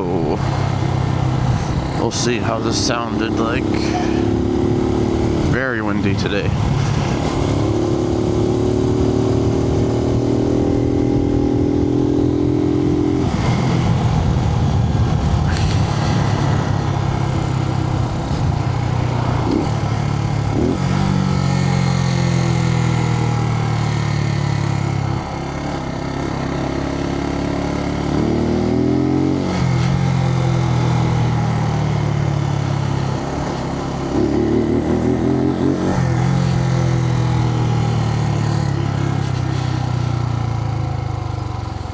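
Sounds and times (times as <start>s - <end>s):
motorcycle engine running: 0.0s - 41.9s
wind noise: 9.3s - 21.3s.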